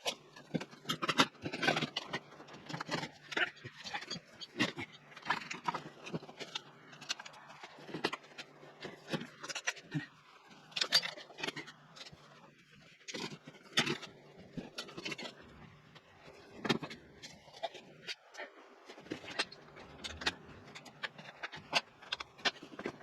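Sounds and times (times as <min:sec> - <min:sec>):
hand tools and metal parts clinking: 0:00.0 - 0:12.4, 0:19.0 - 0:23.0.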